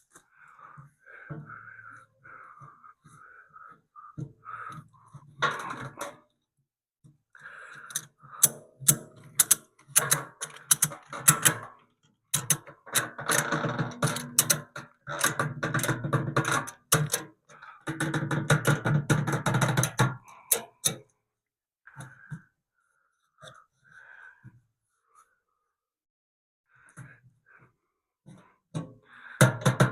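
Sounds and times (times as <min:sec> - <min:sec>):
ratchet clicking: 0:07.9 - 0:11.6, 0:12.4 - 0:12.6.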